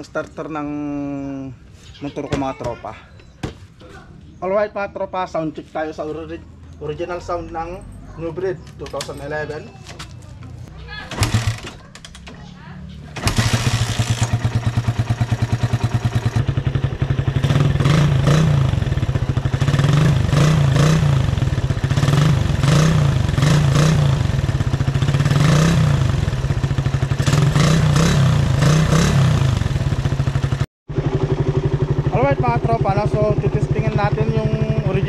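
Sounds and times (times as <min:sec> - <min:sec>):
motorcycle engine revving: 0:11.1 - 0:35.0.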